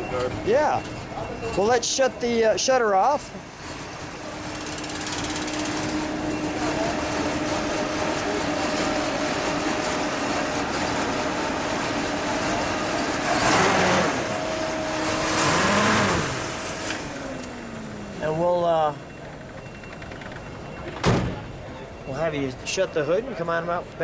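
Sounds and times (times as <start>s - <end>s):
loud engine rush: 3.4s - 20.5s
car engine loping idle: 3.9s - 20.9s.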